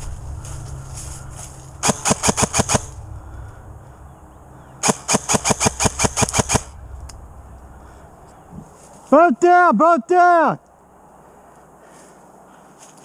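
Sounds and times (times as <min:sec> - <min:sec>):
airsoft gun firing bursts: 0:01.8 - 0:02.9, 0:04.8 - 0:06.7.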